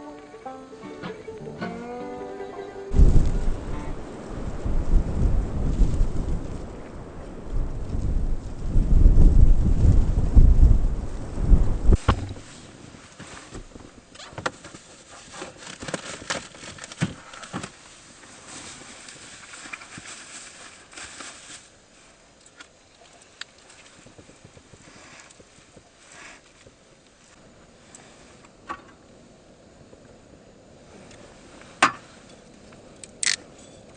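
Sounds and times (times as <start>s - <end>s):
low rumble: 2.9s - 12.5s.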